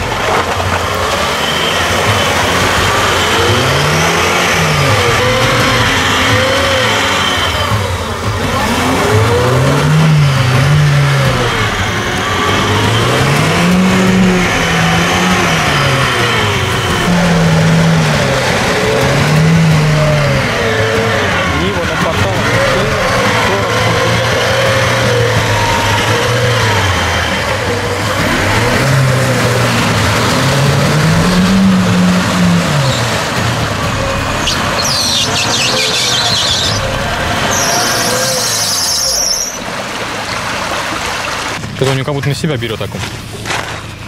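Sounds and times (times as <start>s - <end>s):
car engine revving hard: 0.0s - 41.4s
car pushing through mud: 0.0s - 44.0s.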